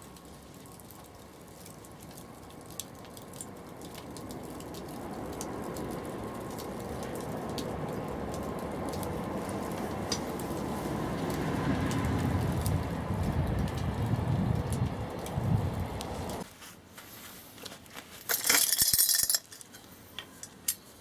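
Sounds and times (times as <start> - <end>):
wood fire crackling: 0.0 - 18.3
low rumbling noise: 2.2 - 16.4.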